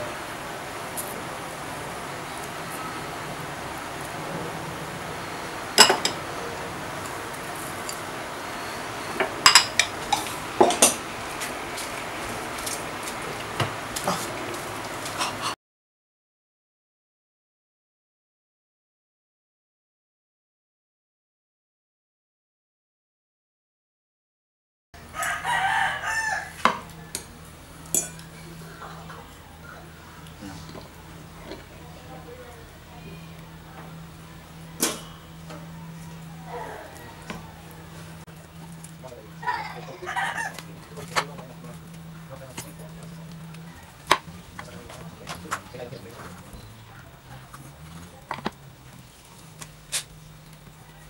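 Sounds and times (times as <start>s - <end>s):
utensils clinking on a steel pot: 5.8s - 6.2s, 9.2s - 11.0s, 27.9s - 28.5s
rooster crowing: 25.0s - 27.6s, 35.1s - 44.5s.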